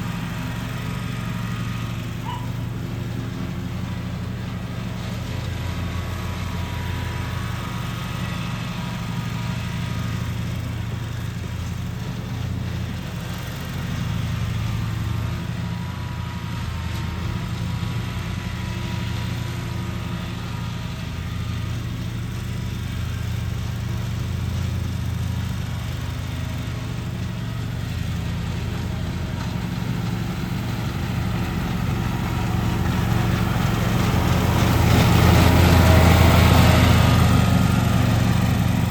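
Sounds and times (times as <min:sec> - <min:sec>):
lawn mower engine running: 0:00.0 - 0:38.9.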